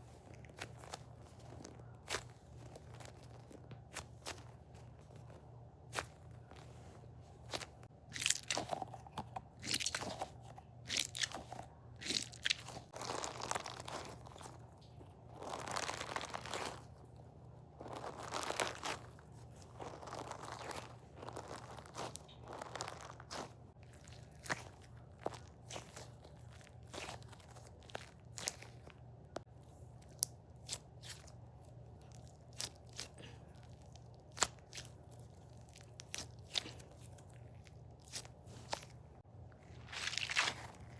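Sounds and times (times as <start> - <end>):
faint low hum: 0.0 - 40.9
stress toy crunching and crackling: 7.5 - 29.0, 30.0 - 39.0, 39.6 - 40.9.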